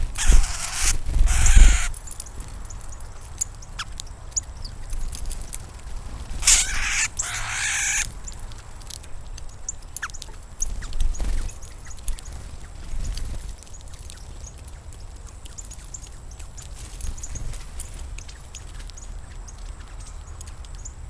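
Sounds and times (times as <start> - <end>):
harsh bird bursts: 0.0 - 2.0, 6.4 - 8.1
birds chirping: 0.0 - 5.4, 6.4 - 21.0.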